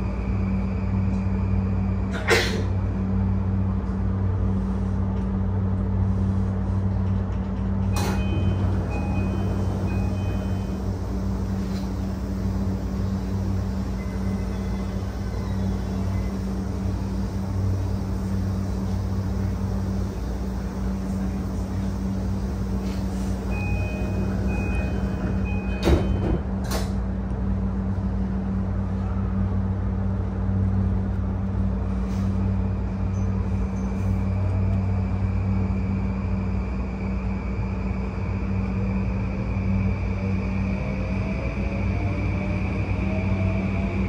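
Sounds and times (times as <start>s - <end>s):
wheels rumbling on rail: 0.0s - 44.0s.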